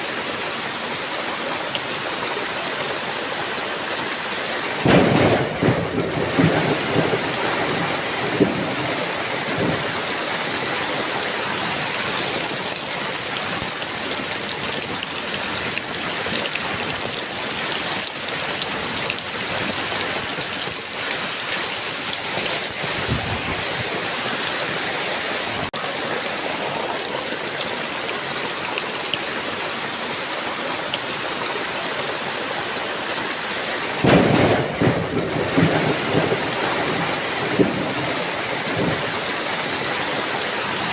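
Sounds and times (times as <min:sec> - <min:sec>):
heavy rain falling: 0:00.0 - 0:40.9
low thunder rumbles: 0:04.8 - 0:10.6, 0:22.4 - 0:24.1, 0:34.0 - 0:40.0.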